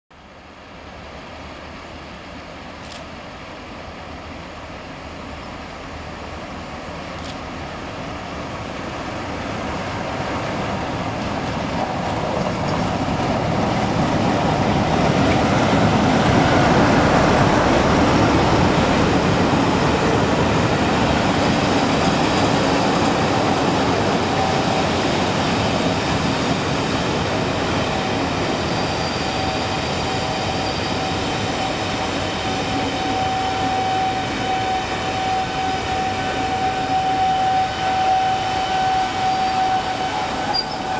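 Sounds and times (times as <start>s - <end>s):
diesel locomotive passing: 0.2s - 40.9s
train brakes squealing: 15.4s - 40.9s.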